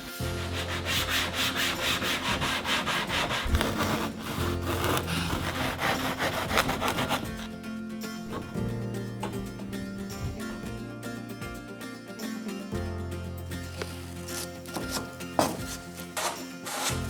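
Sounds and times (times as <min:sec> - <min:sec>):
hand tool rasping across foam: 0:00.1 - 0:07.6, 0:13.7 - 0:17.0.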